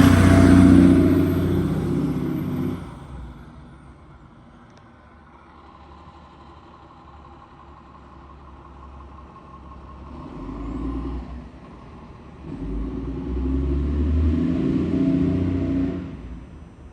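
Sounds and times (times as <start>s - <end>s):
engine running and revving: 0.0s - 3.8s, 9.8s - 16.6s.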